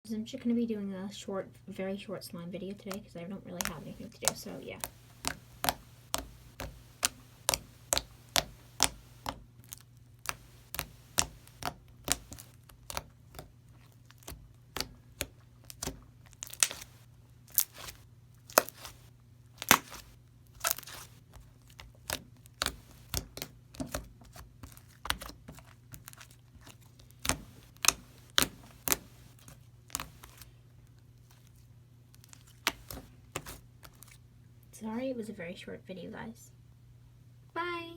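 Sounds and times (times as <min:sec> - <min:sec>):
slime popping and clicking: 0:03.6 - 0:09.4, 0:10.3 - 0:13.4, 0:14.2 - 0:19.0, 0:19.6 - 0:21.1, 0:27.2 - 0:30.4, 0:32.6 - 0:33.6.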